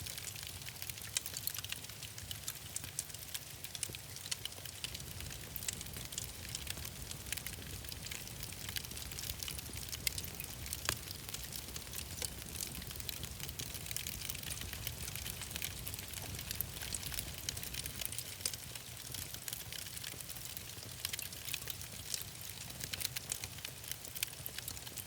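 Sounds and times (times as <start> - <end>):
wood fire crackling and popping: 0.0 - 25.0
low fire rumble: 0.2 - 25.0.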